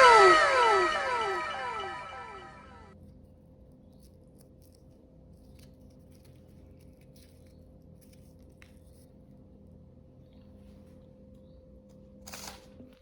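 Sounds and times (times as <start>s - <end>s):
low steady hum: 0.0s - 2.8s.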